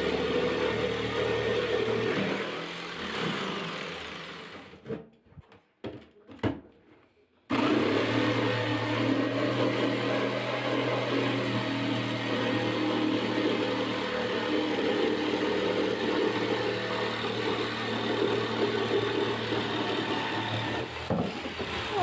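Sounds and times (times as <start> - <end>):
power tool motor cutting: 0.0 - 4.8, 7.5 - 22.0.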